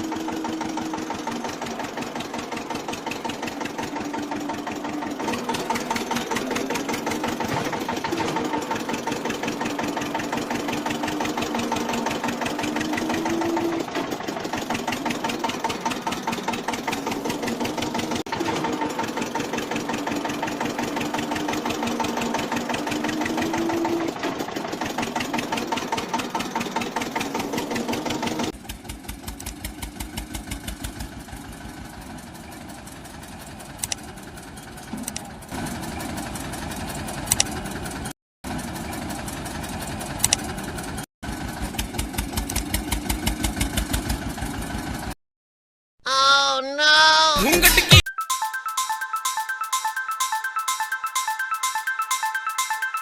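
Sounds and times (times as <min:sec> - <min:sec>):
tractor diesel engine chugging: 0:00.0 - 0:45.1.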